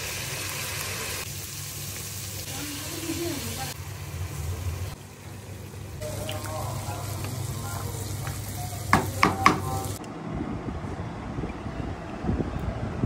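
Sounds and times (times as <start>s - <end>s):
food sizzling and bubbling in pot: 0.0s - 10.0s
spatula knocking on metal pot: 8.9s - 9.7s.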